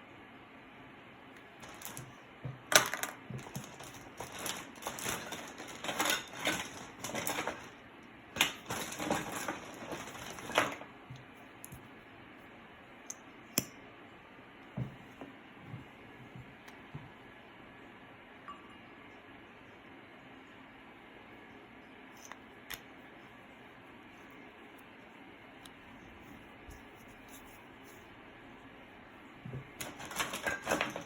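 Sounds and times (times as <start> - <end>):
utensils clicking and clattering: 1.6 - 7.8, 8.4 - 10.9, 29.7 - 31.0.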